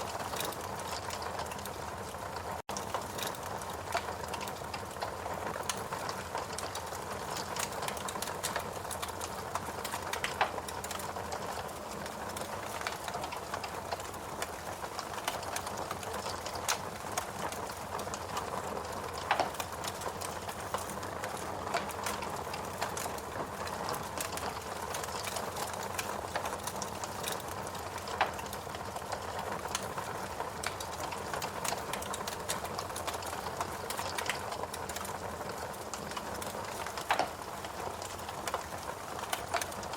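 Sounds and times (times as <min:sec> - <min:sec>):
wood fire crackling: 0:00.0 - 0:39.9
sharp pops of burning wood: 0:36.4 - 0:38.6.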